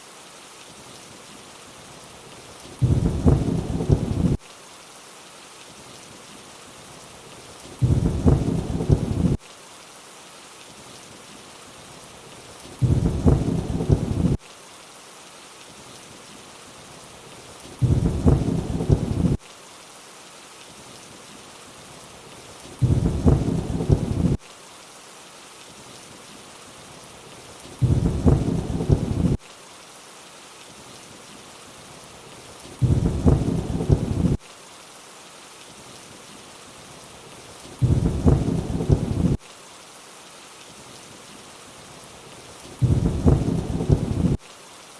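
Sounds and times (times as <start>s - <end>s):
steady rain hissing: 0.0s - 44.9s
thunder rumble: 2.8s - 4.4s, 7.8s - 9.4s, 12.8s - 14.4s, 17.8s - 19.4s, 22.8s - 24.4s, 27.8s - 29.4s, 32.8s - 34.4s, 37.8s - 39.4s, 42.8s - 44.4s.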